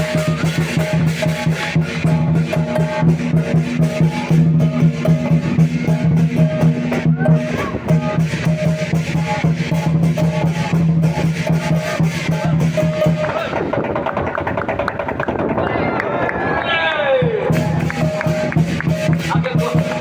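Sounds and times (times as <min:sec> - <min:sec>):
cymbals clashing: 0:00.0 - 0:13.6, 0:17.4 - 0:20.0
drum beaten in driving rhythm: 0:00.0 - 0:15.7, 0:17.2 - 0:20.0.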